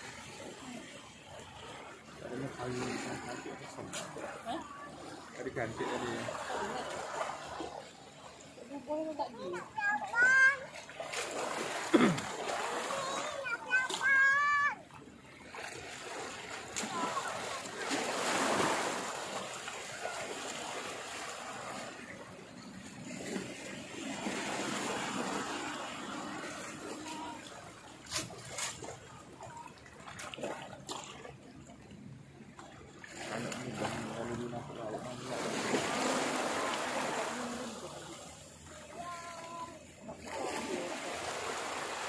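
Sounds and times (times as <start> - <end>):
water splashing: 0.0 - 42.0.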